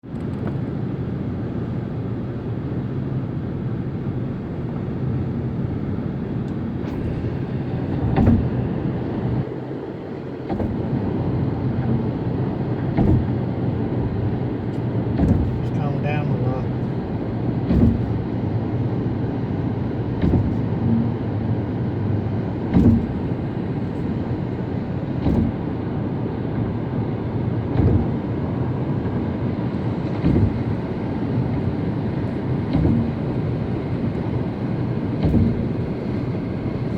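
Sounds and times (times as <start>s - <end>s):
car road noise: 0.0s - 36.9s
tyres thumping over road joints: 6.9s - 9.5s, 12.8s - 13.5s, 15.0s - 18.3s, 20.1s - 21.2s, 22.5s - 27.0s, 27.6s - 36.9s.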